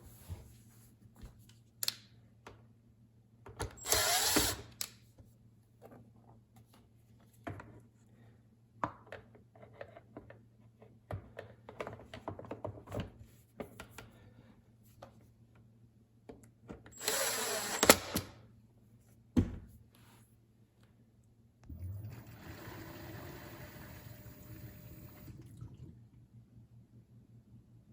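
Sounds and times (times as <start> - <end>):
dishwasher water rushing: 21.7 - 26.0.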